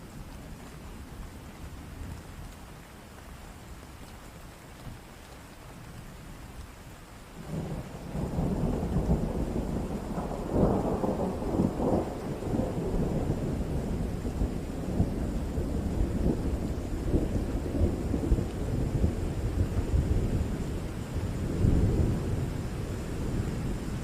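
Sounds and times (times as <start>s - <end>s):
steady rain: 0.0s - 24.0s
thunder rumbling: 7.4s - 24.0s.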